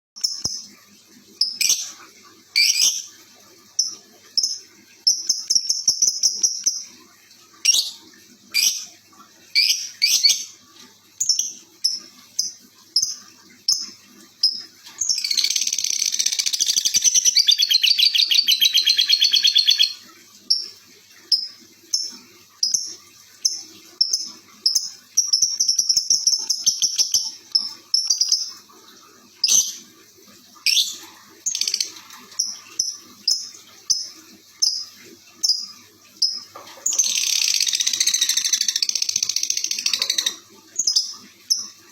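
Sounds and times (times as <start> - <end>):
songbird chirping and trilling: 9.6 - 10.6, 11.2 - 20.6.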